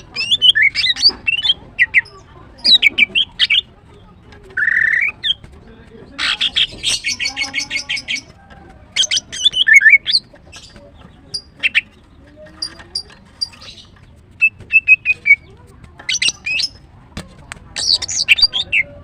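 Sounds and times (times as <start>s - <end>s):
bird chirping: 0.0s - 16.8s, 17.8s - 19.0s
rapid clipped bird notes: 9.0s - 18.8s.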